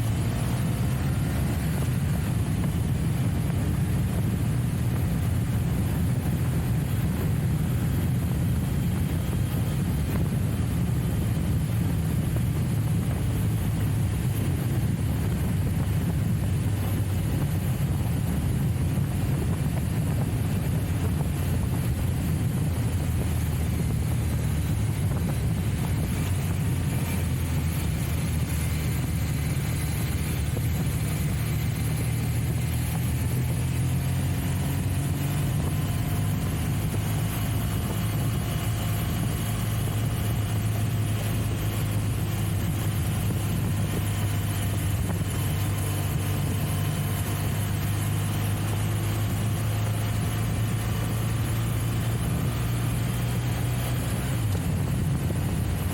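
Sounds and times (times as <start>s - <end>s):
motorcycle engine droning: 0.0s - 55.9s.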